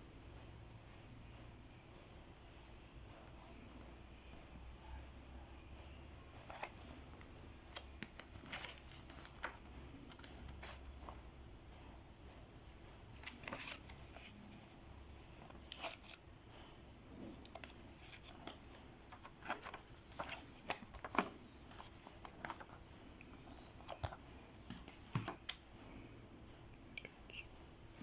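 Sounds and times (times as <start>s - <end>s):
small clicks and crinkles: 6.4s - 11.2s.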